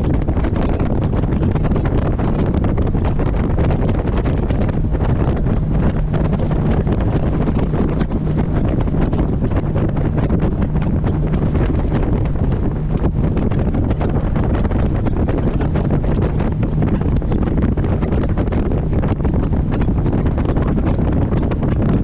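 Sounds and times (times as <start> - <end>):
boat engine humming: 0.0 - 22.0
wind buffeting microphone: 0.0 - 22.0.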